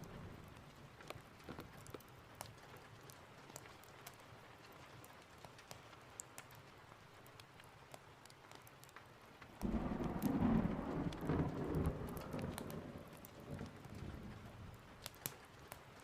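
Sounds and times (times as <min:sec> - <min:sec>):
rain: 0:00.0 - 0:16.0
thunder rumbling: 0:09.6 - 0:15.0.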